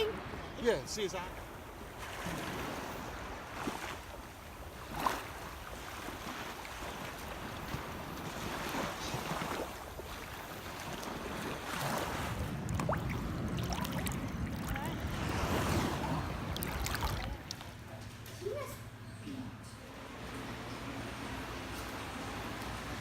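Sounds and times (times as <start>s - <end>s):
sea waves washing: 0.0s - 17.9s
wind buffeting microphone: 7.1s - 17.8s.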